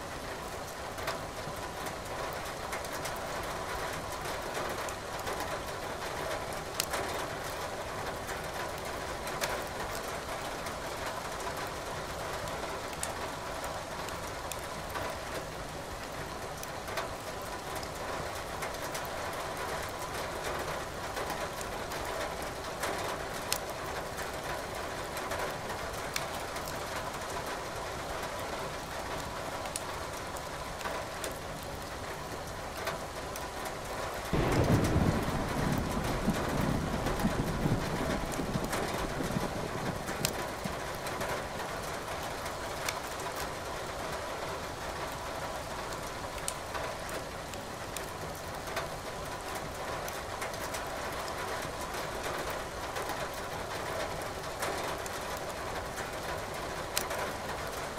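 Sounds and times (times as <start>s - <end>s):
rain hissing: 34.1s - 48.0s.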